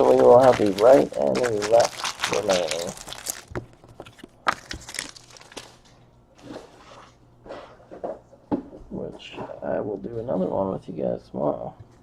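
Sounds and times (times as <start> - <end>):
packaging rustling: 0.0 - 6.9.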